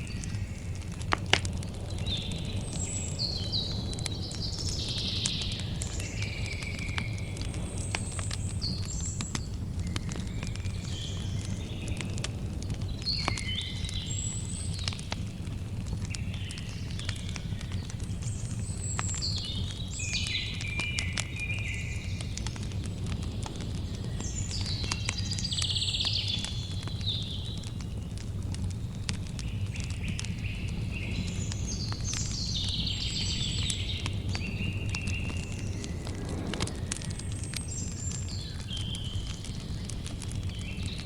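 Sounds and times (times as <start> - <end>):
campfire crackling: 0.0 - 41.0
fire popping: 0.0 - 41.0
steady low rumble: 34.0 - 38.8.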